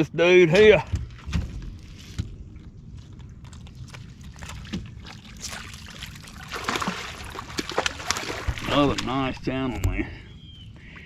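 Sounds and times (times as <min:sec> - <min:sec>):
fish splashing in water: 0:03.5 - 0:09.5.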